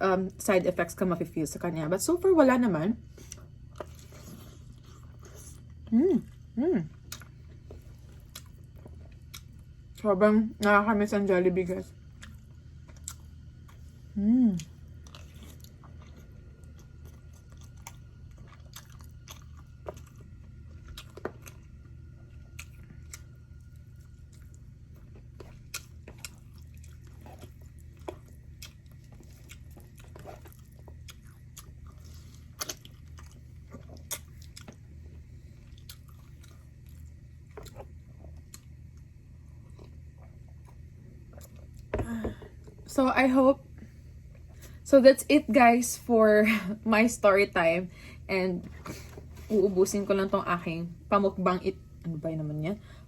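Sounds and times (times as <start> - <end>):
steady low hum: 0.0 - 53.0
person chewing crunchy food: 3.1 - 10.0, 12.0 - 13.9, 14.5 - 42.8.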